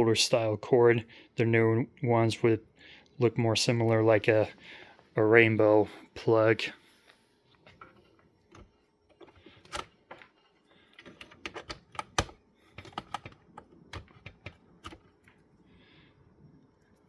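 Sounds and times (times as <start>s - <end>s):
power cord plug clicks and knocks: 11.2s - 15.0s.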